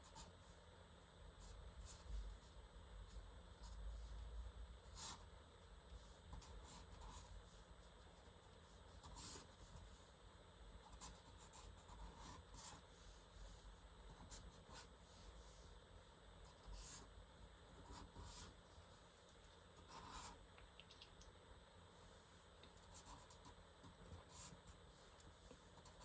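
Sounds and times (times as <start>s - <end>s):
pencil scratching on paper: 10.8s - 15.7s, 17.7s - 18.6s, 19.8s - 20.4s, 22.8s - 26.0s.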